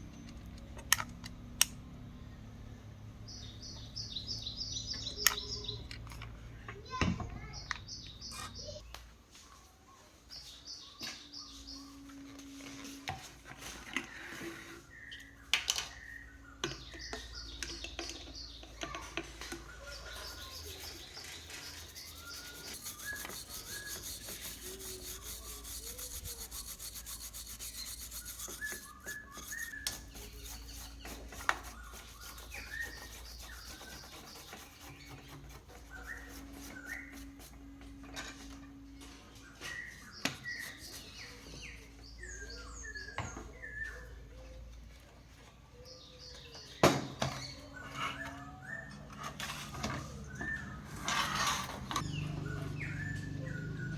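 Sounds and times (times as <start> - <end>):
birds chirping: 3.2 - 9.1, 13.6 - 53.9
hand tool scraping: 19.4 - 37.7, 40.3 - 41.6.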